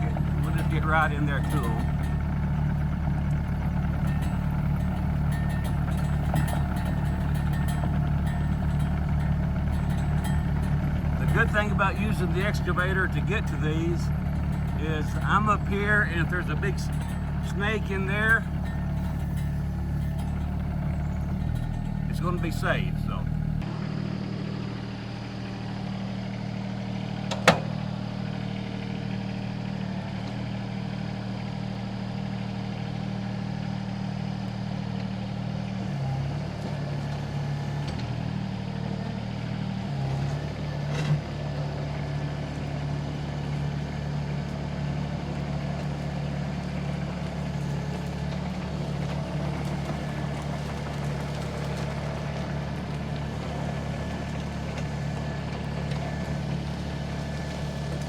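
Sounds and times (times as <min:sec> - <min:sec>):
excavator diesel engine running: 0:00.0 - 0:23.6, 0:35.4 - 0:58.0.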